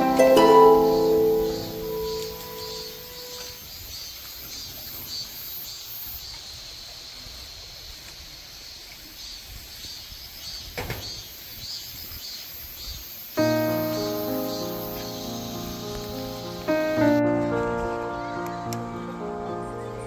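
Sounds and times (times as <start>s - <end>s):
high-pitched chirping: 0.0s - 3.5s.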